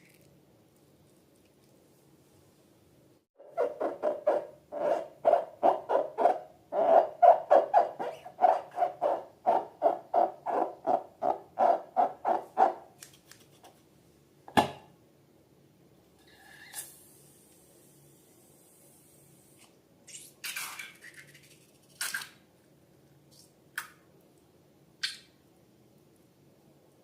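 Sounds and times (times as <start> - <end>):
rubber balloons squeaking: 3.4 - 12.6.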